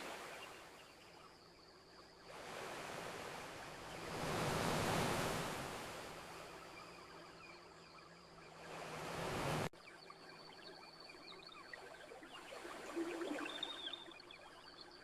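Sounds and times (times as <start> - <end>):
ocean waves washing onto beach: 0.0 - 0.8, 2.3 - 6.8, 8.5 - 9.7.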